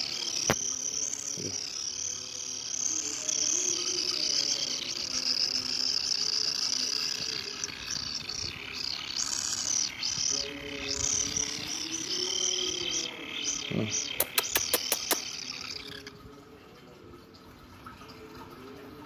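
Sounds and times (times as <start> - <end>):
sharp clicks: 14.0 - 16.1.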